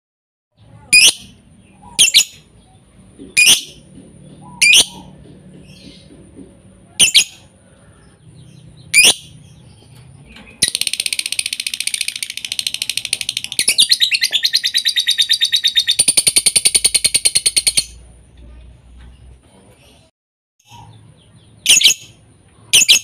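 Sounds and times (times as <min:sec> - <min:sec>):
lovebird chirps: 0:00.7 - 0:06.0, 0:07.0 - 0:07.5, 0:08.3 - 0:18.0, 0:20.6 - 0:23.0.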